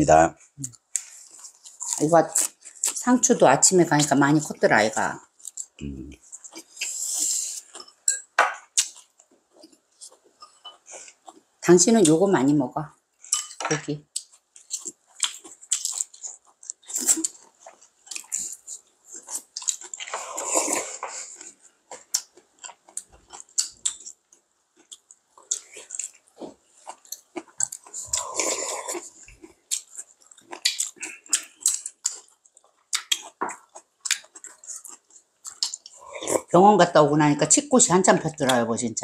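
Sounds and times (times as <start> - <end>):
chewing lettuce wrap: 0.6 - 3.0, 14.0 - 36.5.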